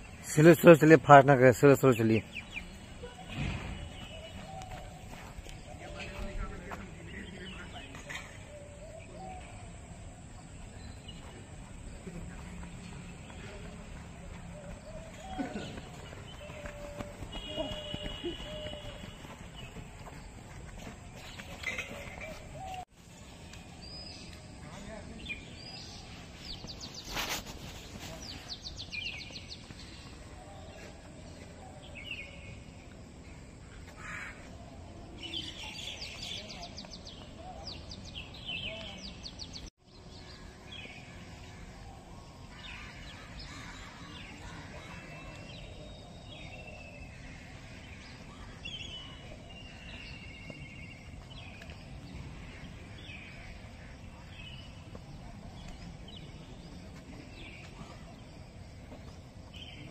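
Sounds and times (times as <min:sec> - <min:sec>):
birds calling: 0:00.0 - 0:59.9
outdoor background hum: 0:02.2 - 0:59.9.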